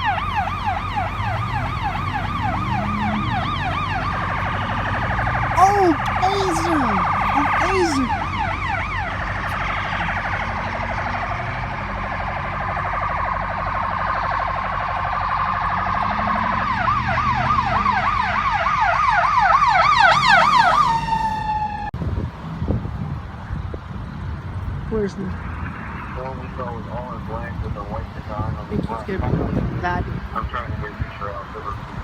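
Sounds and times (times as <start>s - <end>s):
electronic siren: 0.0s - 5.6s, 6.9s - 21.9s.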